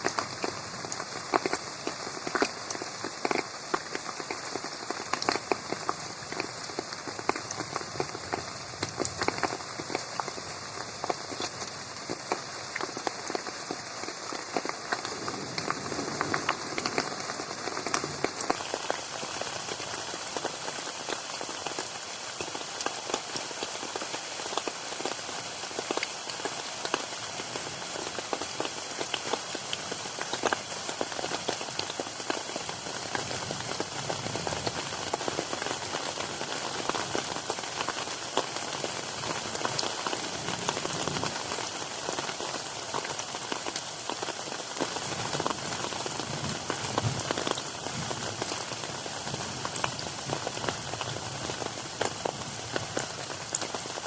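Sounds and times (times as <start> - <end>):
rain falling on a pond: 0.0 - 54.0.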